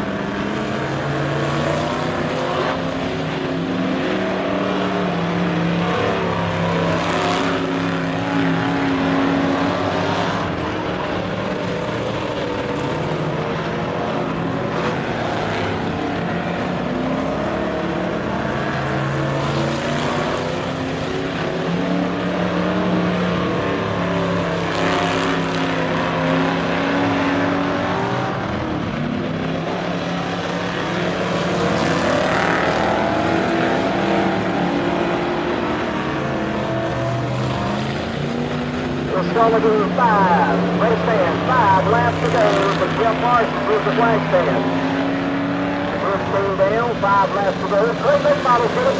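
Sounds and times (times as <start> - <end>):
cars passing close by: 0.0 - 48.9
stock car engines racing: 0.0 - 48.9.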